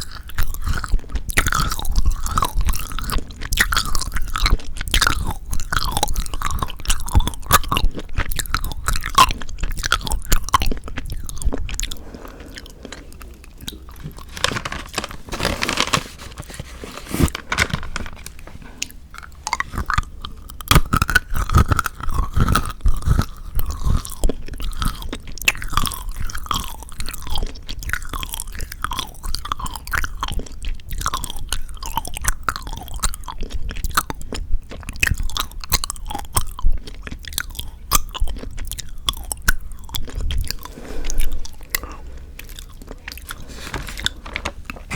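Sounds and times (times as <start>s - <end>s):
chewing and crunching chocolate: 0.0s - 16.0s, 17.2s - 44.9s.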